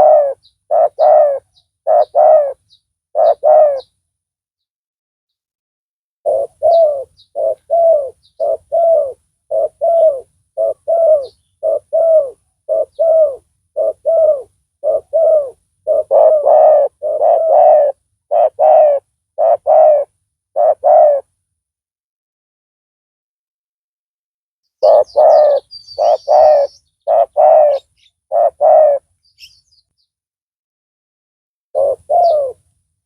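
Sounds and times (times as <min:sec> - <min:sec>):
dove cooing: 0:00.0 - 0:04.0, 0:06.3 - 0:21.4, 0:24.8 - 0:29.6, 0:31.8 - 0:32.7.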